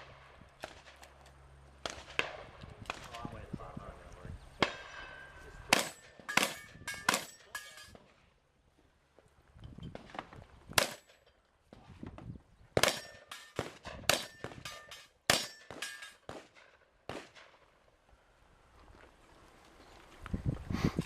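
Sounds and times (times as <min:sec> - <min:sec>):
shotgun shots: 0:04.6 - 0:07.5, 0:10.8 - 0:11.1, 0:12.8 - 0:17.7
steel target ringing: 0:04.7 - 0:07.9, 0:14.2 - 0:16.3.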